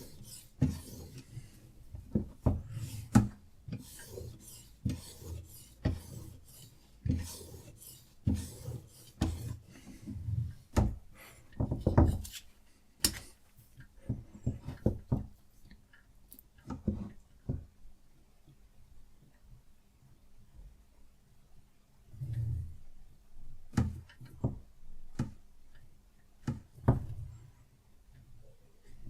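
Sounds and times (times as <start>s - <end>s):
knife rasping on sharpening stone: 0.0s - 1.2s, 3.8s - 9.6s.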